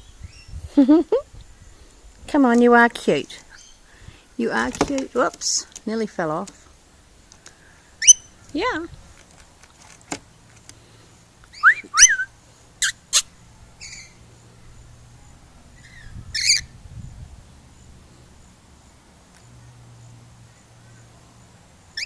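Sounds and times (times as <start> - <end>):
lorikeets shrill calls: 7.9 - 8.8, 11.5 - 14.2, 15.8 - 16.8.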